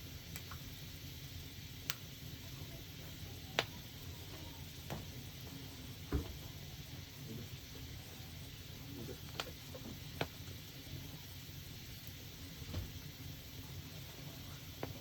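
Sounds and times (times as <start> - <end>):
steady low fire noise: 0.0 - 15.0
wood fire pops: 0.2 - 0.8, 1.7 - 2.2, 3.0 - 6.7, 8.6 - 15.0.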